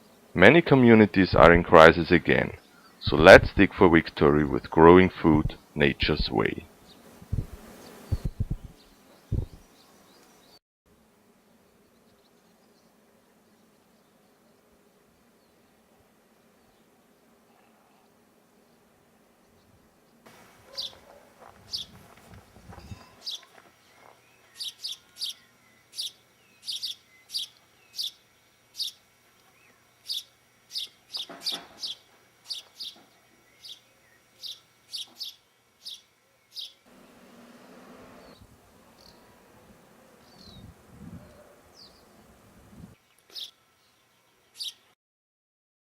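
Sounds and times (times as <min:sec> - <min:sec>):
small bird chirping: 0:07.8 - 0:10.6, 0:20.7 - 0:22.0, 0:22.7 - 0:36.8, 0:38.2 - 0:39.3, 0:40.2 - 0:42.2, 0:43.0 - 0:44.9.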